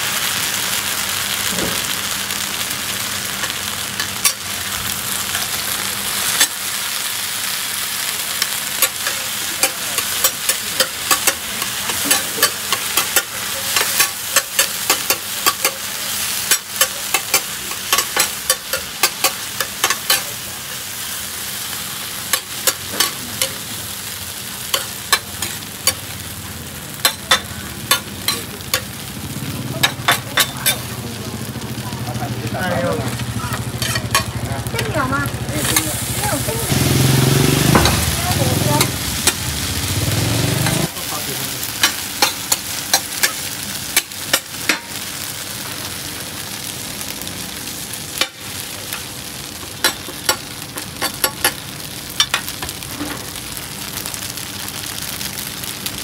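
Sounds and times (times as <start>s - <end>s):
omelette sizzling in oil: 0.0s - 56.0s
metal spatula scraping a pan: 33.7s - 34.3s.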